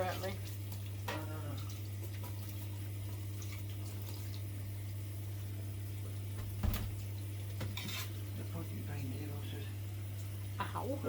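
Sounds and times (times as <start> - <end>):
tap running into a sink: 6.3 - 7.9.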